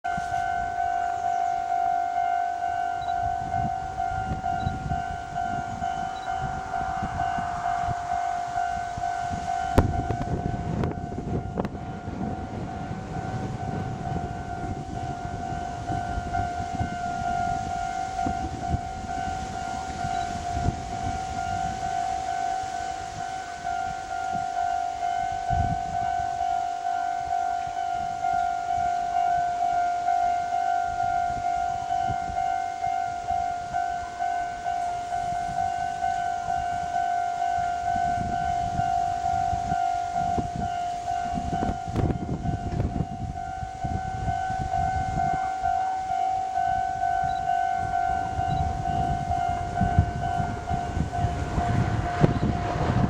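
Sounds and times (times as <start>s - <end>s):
electric railcar whine: 0.0s - 53.0s
low rumble: 3.1s - 17.6s, 47.3s - 53.0s.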